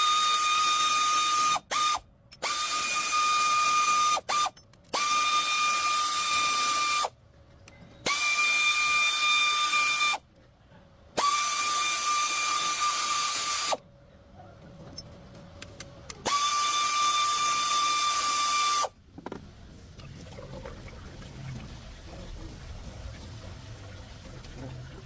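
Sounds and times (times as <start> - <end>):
power tool motor whining: 0.0 - 7.1, 11.2 - 13.8, 16.2 - 18.9.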